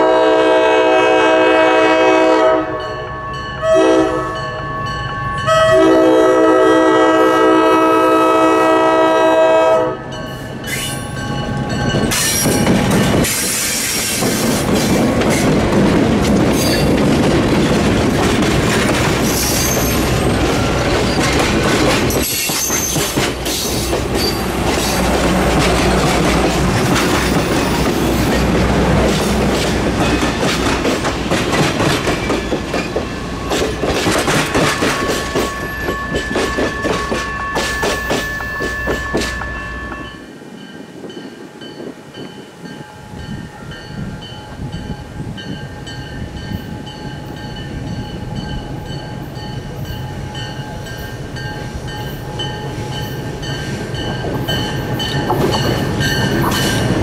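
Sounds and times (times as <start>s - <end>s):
thin high squealing tones: 10.3s - 12.6s, 19.2s - 21.2s, 35.0s - 40.2s
wheels clicking over rail joints: 11.9s - 40.1s.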